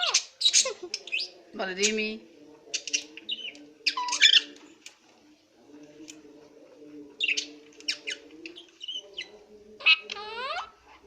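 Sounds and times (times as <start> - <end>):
parrot chirping and squawking: 0.0 - 2.1, 2.8 - 4.5, 7.2 - 10.9.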